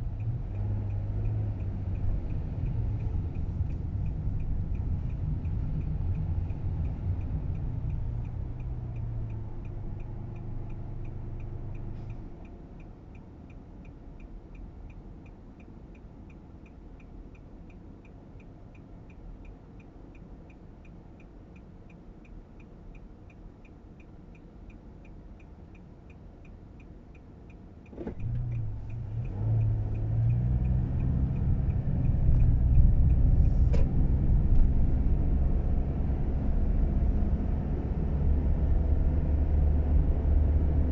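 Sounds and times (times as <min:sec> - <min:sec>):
light ticks: 0:00.0 - 0:36.3
click: 0:27.5 - 0:30.8.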